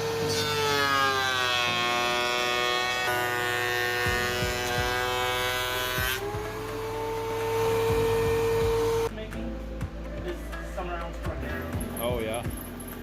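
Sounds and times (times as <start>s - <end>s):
power tool cutting wood: 0.0s - 9.1s.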